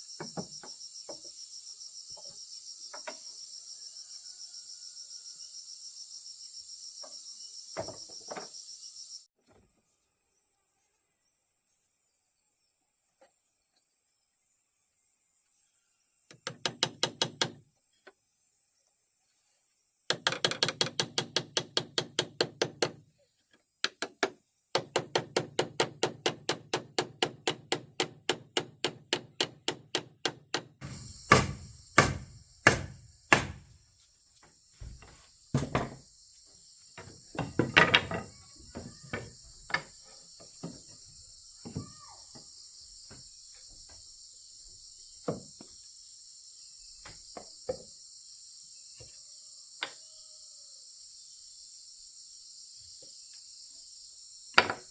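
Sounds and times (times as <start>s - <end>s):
insects chirping: 0.0s - 54.9s
hammer blows on wood: 25.3s - 33.8s.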